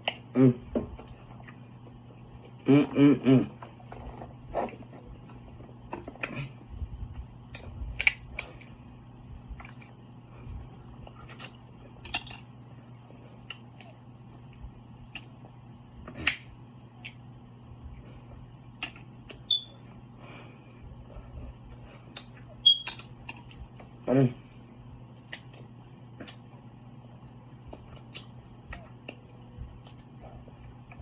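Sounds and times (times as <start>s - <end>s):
person chewing: 0.0s - 18.0s, 21.4s - 24.6s, 27.7s - 31.0s.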